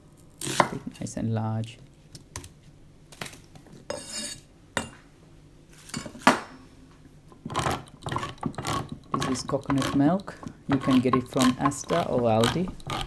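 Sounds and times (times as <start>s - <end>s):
dishes and utensils clattering: 5.9s - 6.6s.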